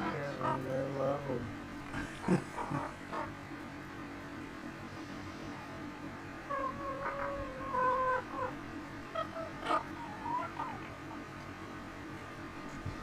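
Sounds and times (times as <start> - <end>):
hens calling: 0.0 - 1.1, 2.1 - 3.4, 6.4 - 11.4.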